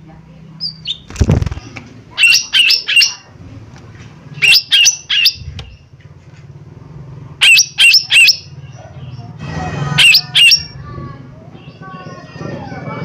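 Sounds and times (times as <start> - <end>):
bird calling sharp notes: 2.2 - 3.3, 4.4 - 5.8, 7.4 - 8.6, 9.5 - 10.8.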